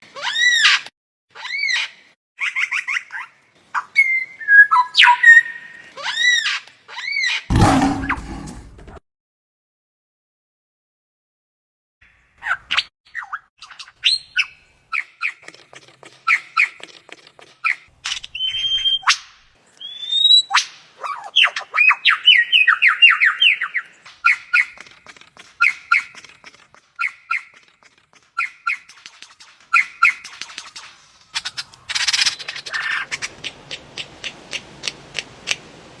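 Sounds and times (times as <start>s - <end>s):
bird chirping and whistling: 4.0s - 5.8s, 18.4s - 19.2s, 19.8s - 20.6s.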